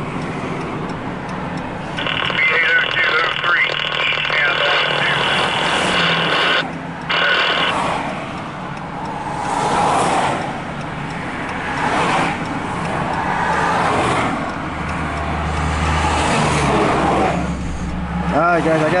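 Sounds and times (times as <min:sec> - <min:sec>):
rumble of passing vehicles: 0:00.0 - 0:19.0
steady multi-pitched hum: 0:02.0 - 0:07.8.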